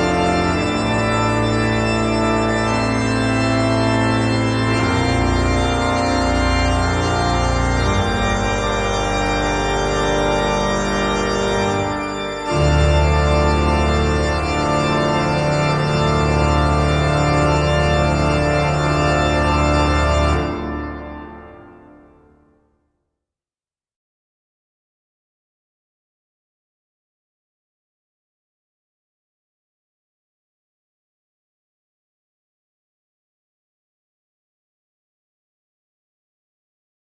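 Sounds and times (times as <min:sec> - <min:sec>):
organ chords: 0:00.0 - 0:22.6.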